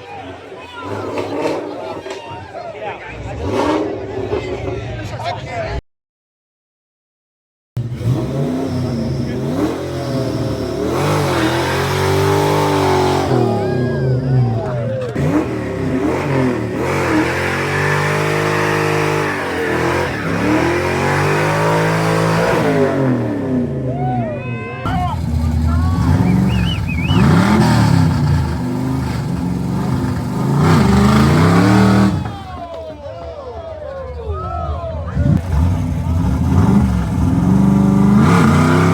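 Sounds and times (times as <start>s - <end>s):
car engine revving: 3.2s - 4.9s, 7.8s - 24.1s, 24.8s - 32.8s, 35.1s - 38.9s.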